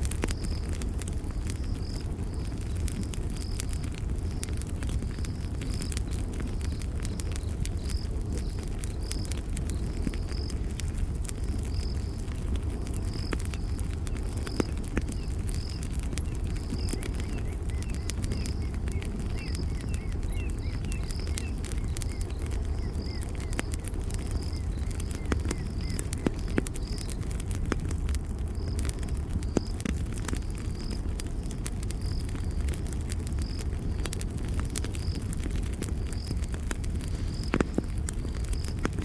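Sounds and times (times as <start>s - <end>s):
campfire crackling and popping: 0.0s - 39.0s
cricket chirping: 0.1s - 27.2s.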